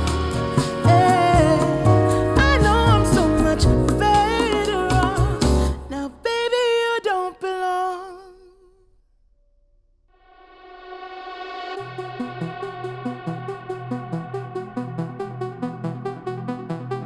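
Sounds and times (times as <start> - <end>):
pop song with singing: 0.0 - 8.8
sustained synth chords: 11.7 - 17.0.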